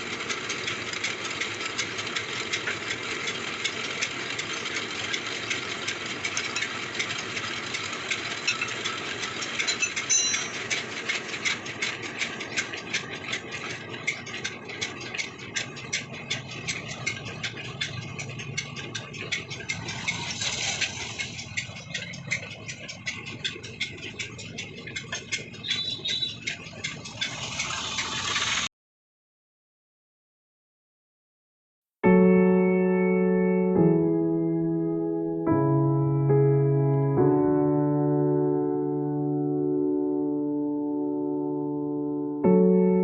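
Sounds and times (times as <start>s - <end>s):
engine with knocking rattle: 0.0s - 28.7s.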